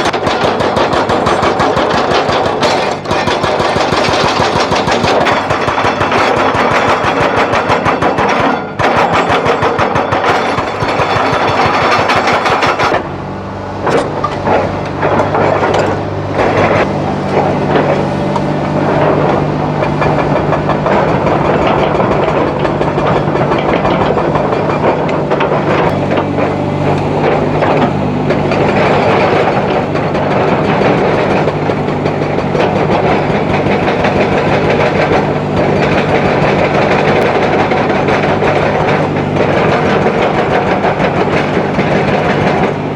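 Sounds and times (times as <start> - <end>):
fast rattling clatter: 0.0 - 13.1
excavator diesel engine: 0.0 - 42.9
scraping and knocking: 10.2 - 42.6.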